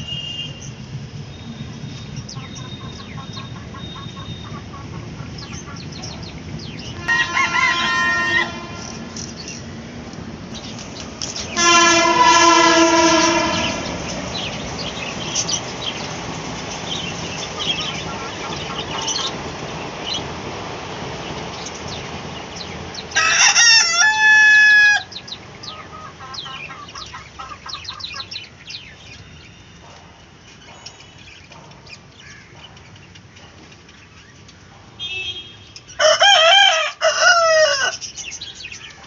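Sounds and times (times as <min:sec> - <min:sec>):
chicken chirps and clucks: 0:02.1 - 0:09.6, 0:16.8 - 0:19.4, 0:24.9 - 0:30.0
rooster crowing: 0:07.0 - 0:08.9, 0:11.6 - 0:13.9, 0:23.1 - 0:25.2, 0:36.0 - 0:38.1.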